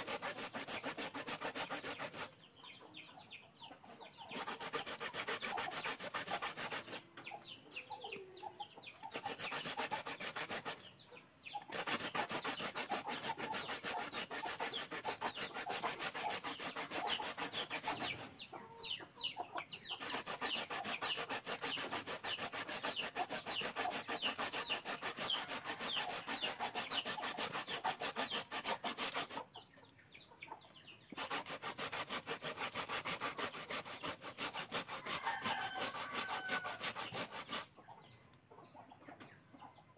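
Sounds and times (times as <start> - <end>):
grating on metal grater: 0.0 - 2.3, 4.4 - 7.0, 9.1 - 10.8, 11.7 - 18.3, 20.0 - 29.4, 31.2 - 37.7.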